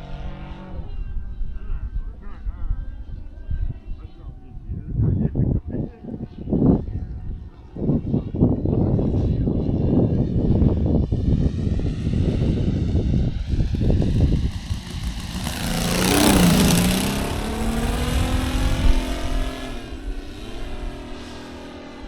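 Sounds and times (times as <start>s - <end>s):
model plane engine flying past: 9.0s - 22.0s.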